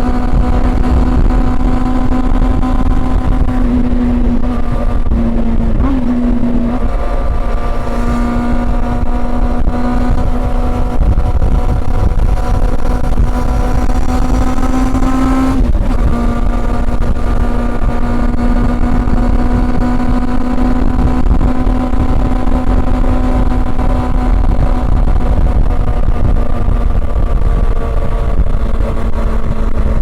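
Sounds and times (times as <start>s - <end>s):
motorcycle engine at cruising revs: 0.0s - 30.0s.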